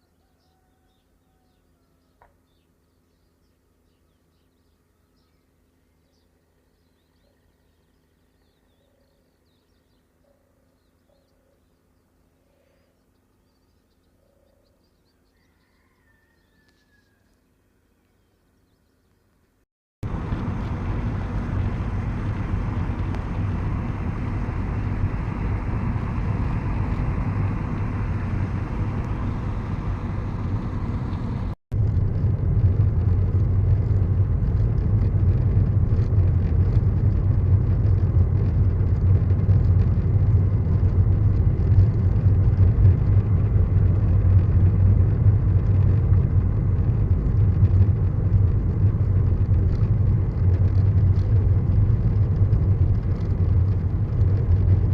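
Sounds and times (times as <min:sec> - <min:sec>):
road vehicle driving drone: 0:20.0 - 0:54.9.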